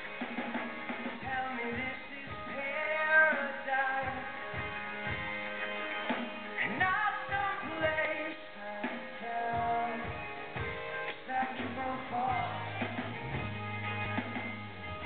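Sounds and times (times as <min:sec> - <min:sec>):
rock guitar: 0:00.0 - 0:15.0
person singing: 0:01.0 - 0:05.2, 0:05.9 - 0:13.1.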